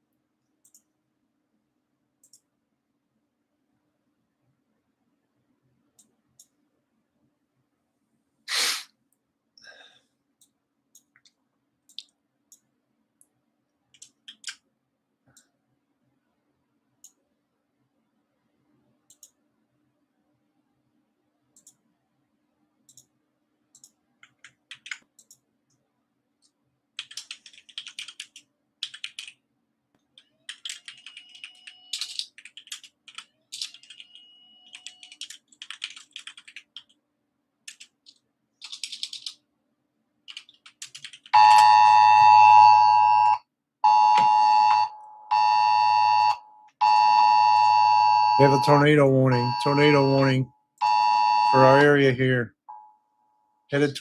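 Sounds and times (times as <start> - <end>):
keyboard typing: 13.9 - 14.6, 23.7 - 25.4, 26.4 - 29.4, 30.0 - 37.0, 37.6 - 39.4, 40.2 - 41.7
two-tone phone emergency alert: 41.4 - 51.8.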